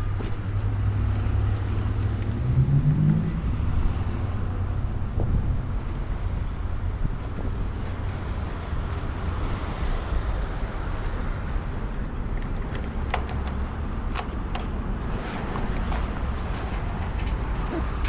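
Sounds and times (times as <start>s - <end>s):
motorcycle engine running: 12.9s - 14.8s.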